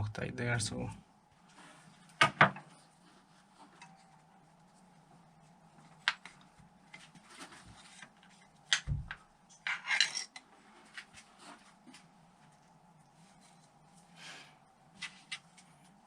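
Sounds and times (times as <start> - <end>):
metal tools clinking: 9.5 - 10.4.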